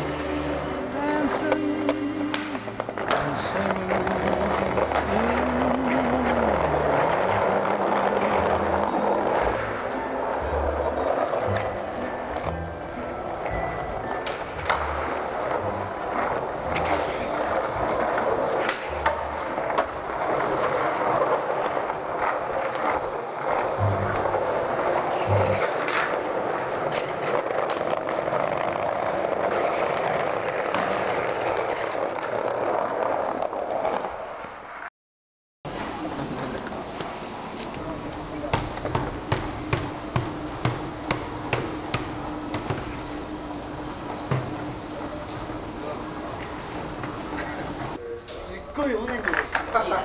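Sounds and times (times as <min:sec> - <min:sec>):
skateboard wheels rolling on pavement: 0:00.0 - 0:34.9, 0:35.7 - 0:50.0
skateboard clacks: 0:01.2 - 0:12.6, 0:13.2 - 0:34.4, 0:35.7 - 0:45.4, 0:48.8 - 0:50.0.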